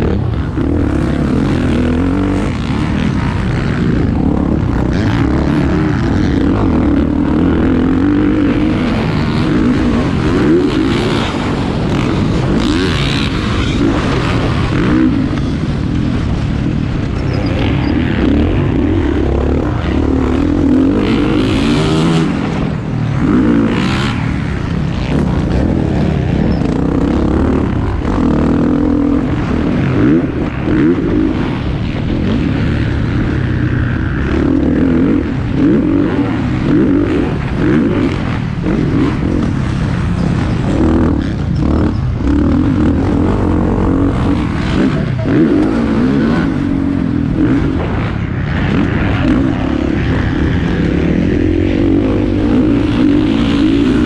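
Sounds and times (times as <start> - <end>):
motocross bikes revving: 0.0 - 54.0.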